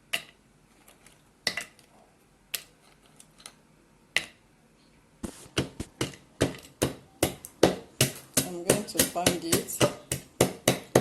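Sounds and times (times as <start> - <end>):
pestle pounding in a mortar: 5.5 - 11.0.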